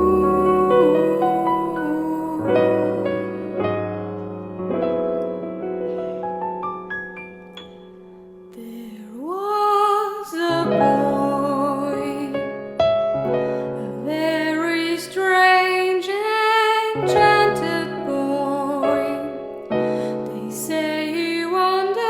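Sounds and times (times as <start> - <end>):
woman singing with vibrato: 0.0 - 4.0, 8.6 - 12.4, 13.8 - 19.4, 20.0 - 22.0
piano playing softly: 0.0 - 22.0.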